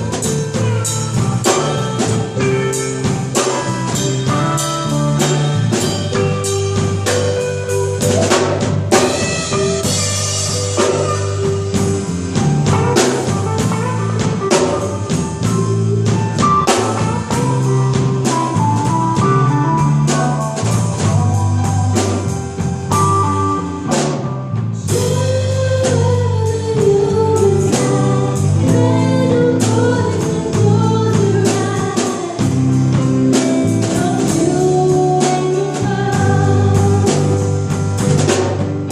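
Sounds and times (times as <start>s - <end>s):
wavering melody line: 0.0s - 23.8s
bass and guitar: 0.0s - 38.9s
drum kit beat: 0.0s - 38.9s.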